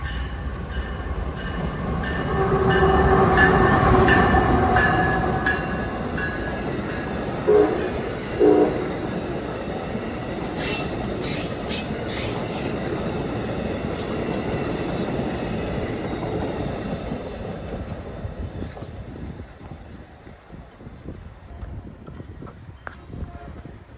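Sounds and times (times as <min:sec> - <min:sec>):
train passing at speed: 0:00.0 - 0:22.8
train horn blasts: 0:02.0 - 0:06.0, 0:07.4 - 0:09.0, 0:23.1 - 0:23.9.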